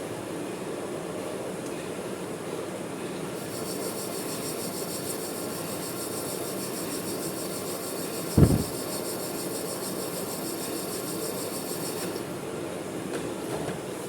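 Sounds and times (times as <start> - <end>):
pulsing hiss: 8.2 - 9.2.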